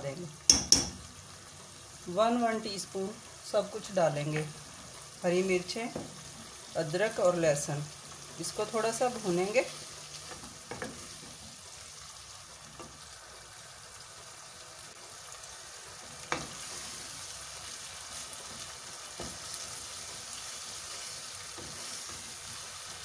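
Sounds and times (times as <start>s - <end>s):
meat sizzling in oil: 0.0s - 23.0s
spatula knocking against pan: 0.5s - 1.0s.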